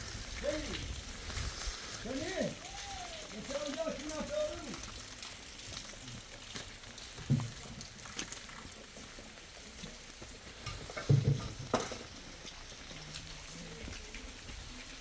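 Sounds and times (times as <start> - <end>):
rain hissing: 0.0 - 15.0
sharp knocks and dull thumps: 7.2 - 7.9, 10.6 - 12.1.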